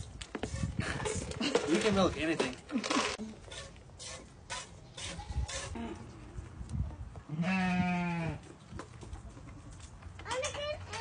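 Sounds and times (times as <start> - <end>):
goat bleating: 7.3 - 8.4.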